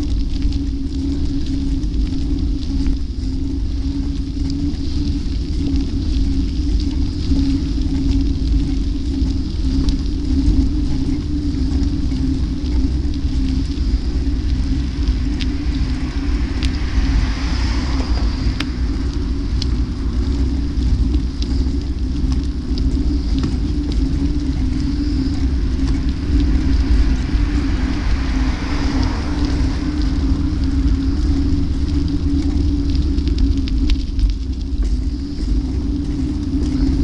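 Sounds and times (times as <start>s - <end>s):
low hum: 0.0s - 37.0s
road rumble: 0.0s - 37.0s
wind noise: 0.0s - 37.0s.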